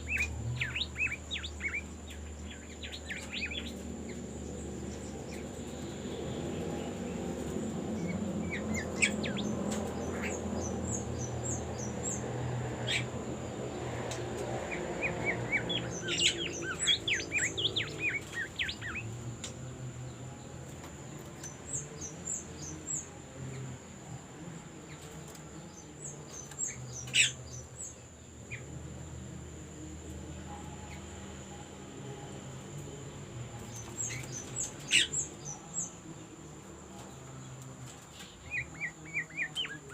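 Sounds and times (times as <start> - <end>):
bird chirping and trilling: 0.0 - 7.0, 7.9 - 13.2, 14.6 - 19.2, 38.4 - 39.9
steady high-pitched whine: 0.0 - 39.9.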